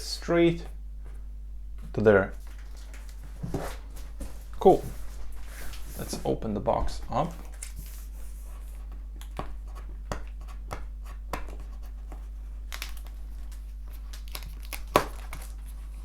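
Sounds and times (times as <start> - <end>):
low electrical hum: 0.0 - 16.0
packing tape tearing: 12.7 - 15.8.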